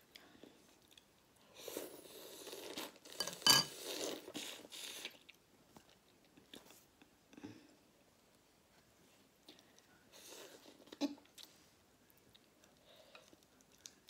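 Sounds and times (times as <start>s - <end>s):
faint chewing: 0.0s - 7.6s, 8.3s - 14.0s
person eating noisily: 0.8s - 5.4s.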